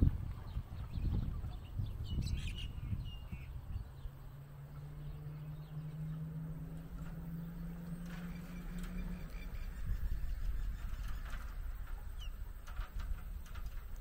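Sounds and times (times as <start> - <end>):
small birds chirping: 0.0 - 12.7
low rumble: 0.0 - 14.0
steady low drone: 2.7 - 13.9.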